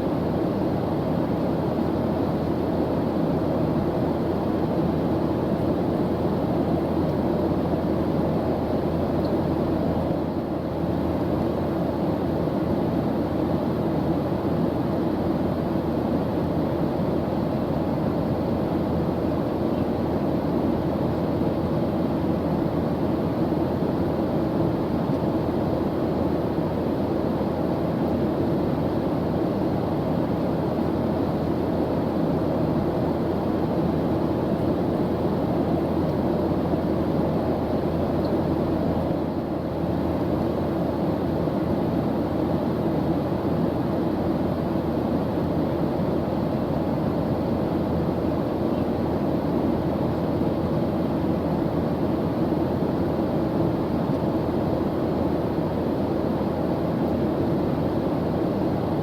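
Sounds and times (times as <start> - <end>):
airplane engine drone: 0.0 - 59.0.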